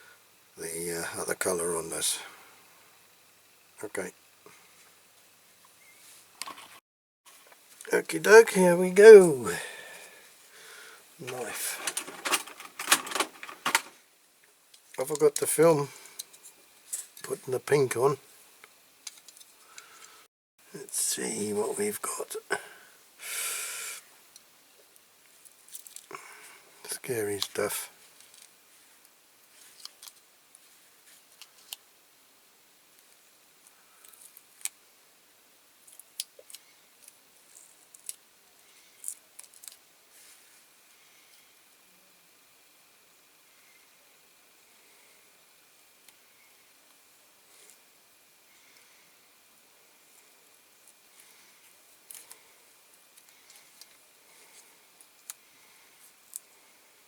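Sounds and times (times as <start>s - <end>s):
light clicks and small scrapes: 29.5s - 31.8s.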